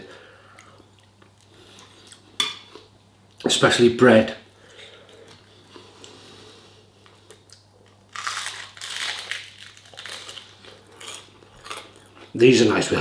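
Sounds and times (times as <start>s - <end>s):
crunchy food chewing: 7.0s - 12.4s.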